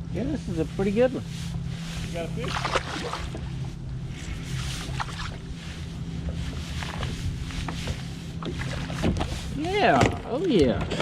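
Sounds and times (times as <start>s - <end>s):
steady low hum: 0.0s - 11.0s
water splashing: 2.1s - 5.9s, 6.5s - 9.8s.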